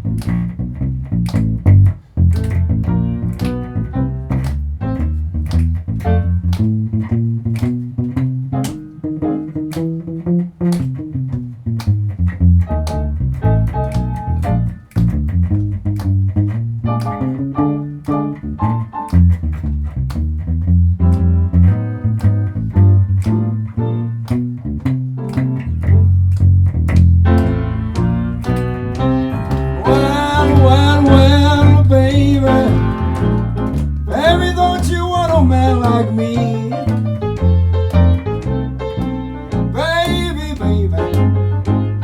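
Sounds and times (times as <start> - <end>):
piano chords: 0.0 - 11.4, 16.6 - 19.4, 20.9 - 42.0
guitar chords: 0.0 - 14.9, 20.9 - 42.0
plucked bass line: 0.0 - 42.0.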